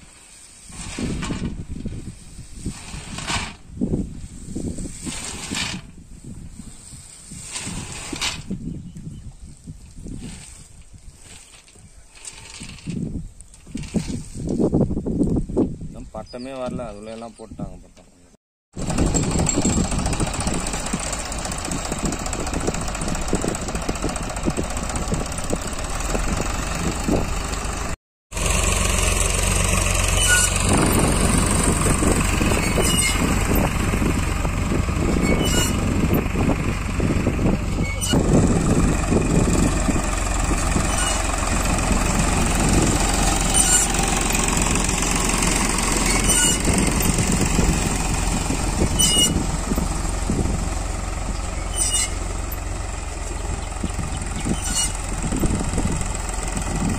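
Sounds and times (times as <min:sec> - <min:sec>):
tractor diesel engine running: 0:18.7 - 0:56.9.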